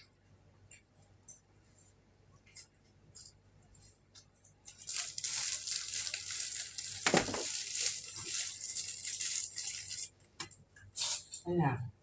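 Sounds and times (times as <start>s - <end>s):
crinkling and rustling: 2.4s - 11.4s.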